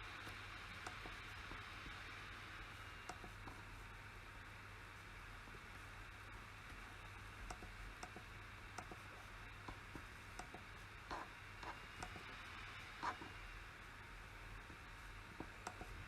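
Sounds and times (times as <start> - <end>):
faint steady hum and hiss: 0.0 - 16.0
computer mouse clicks: 0.2 - 2.0, 3.0 - 3.6, 7.4 - 12.4, 15.4 - 16.0.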